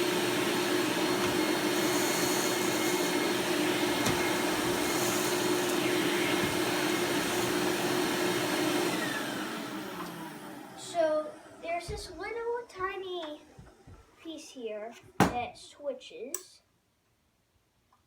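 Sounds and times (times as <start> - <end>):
vacuum cleaner running: 0.0 - 14.2.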